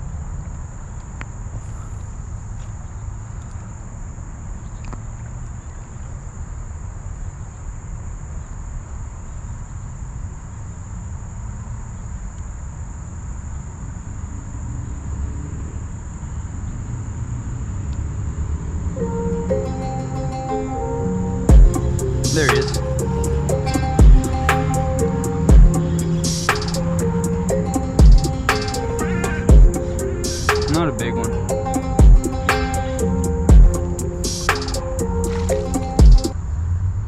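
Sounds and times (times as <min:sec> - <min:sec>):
insects droning: 0:00.0 - 0:36.3
music: 0:19.0 - 0:36.4.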